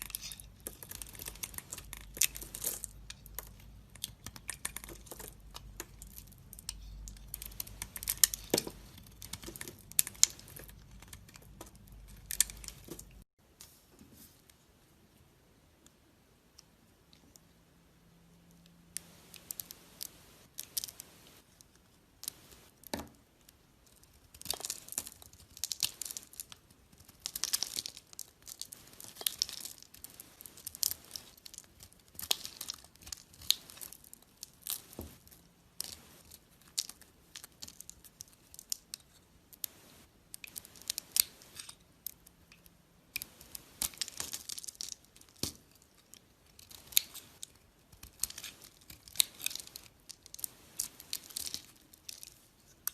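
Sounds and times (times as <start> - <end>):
knife scraping bar soap: 0.0 - 13.2.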